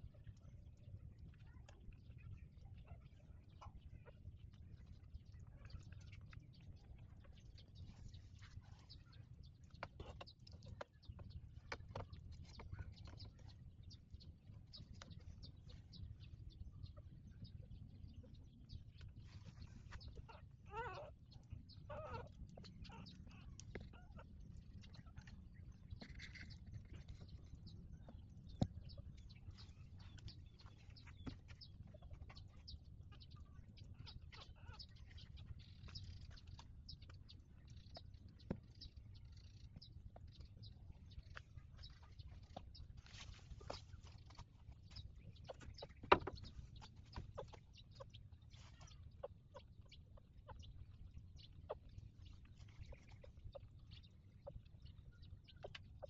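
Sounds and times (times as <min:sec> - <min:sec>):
puppies squeaking: 0:20.2 - 0:21.1, 0:21.9 - 0:24.3.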